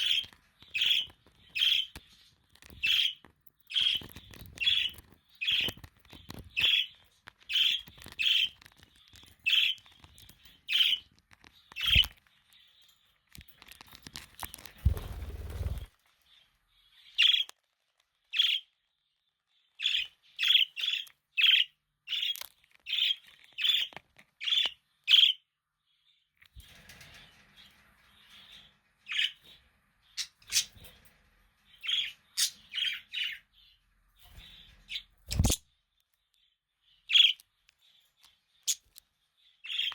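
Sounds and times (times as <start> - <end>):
budgerigars chirping: 0.0 - 2.0, 2.8 - 8.6, 19.8 - 25.4, 30.2 - 30.9, 31.8 - 33.4.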